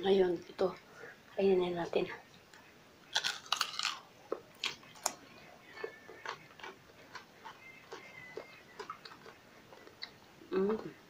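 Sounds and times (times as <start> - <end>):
chewing food: 3.1 - 11.0.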